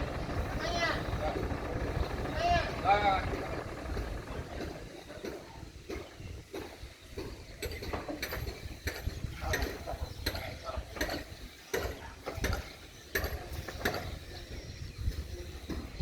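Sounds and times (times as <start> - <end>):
low rumble: 0.0 - 5.4
mechanical clicks and clanks: 0.0 - 5.4.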